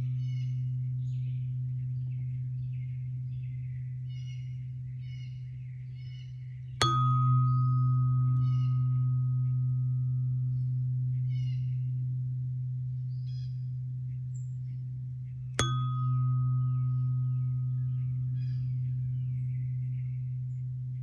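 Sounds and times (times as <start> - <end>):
birds chirping: 0.0 - 21.0
tuning fork ringing: 0.0 - 21.0
tuning fork struck with bright ping: 6.8 - 21.0.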